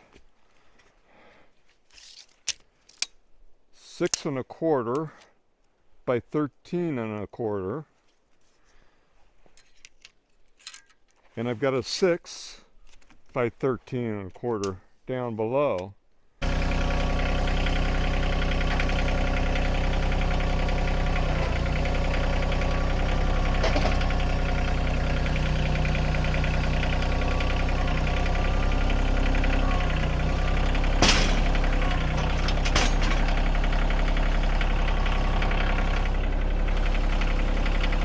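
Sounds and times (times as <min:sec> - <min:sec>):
sawmill engine running: 0:16.4 - 0:38.0.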